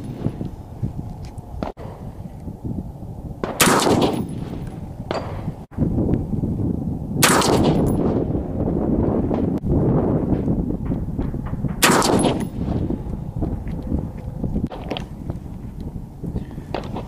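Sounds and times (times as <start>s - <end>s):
rifle shots echoing: 3.4s - 5.6s, 7.2s - 8.2s, 11.7s - 12.7s.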